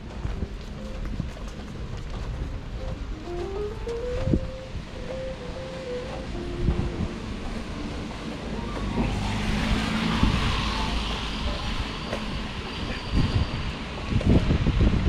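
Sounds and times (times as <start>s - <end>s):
faint held tune notes: 0.0s - 9.3s
wind rumble on microphone: 0.0s - 15.0s
car tyres hissing on wet street: 7.1s - 14.8s.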